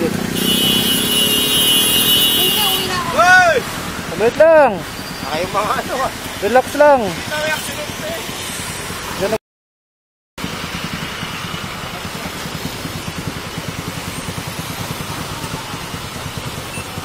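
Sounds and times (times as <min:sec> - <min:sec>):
motorcycle engine idling: 0:10.5 - 0:17.0.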